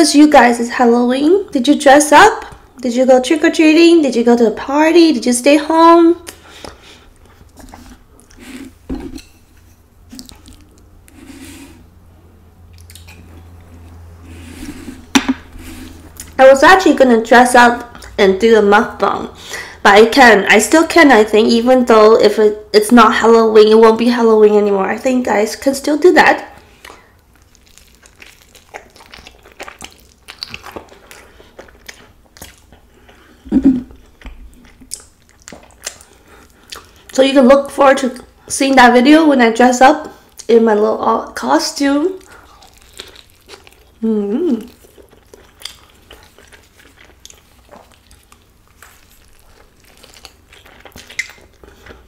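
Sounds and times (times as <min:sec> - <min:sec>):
wet chewing sounds: 0:06.2 - 0:08.9, 0:09.7 - 0:11.9, 0:12.6 - 0:16.4, 0:26.6 - 0:37.2, 0:41.8 - 0:52.0.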